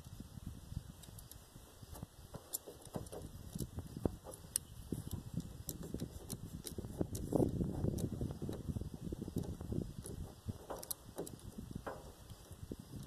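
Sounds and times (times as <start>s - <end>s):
hand tools clicking and clinking: 2.4s - 12.6s.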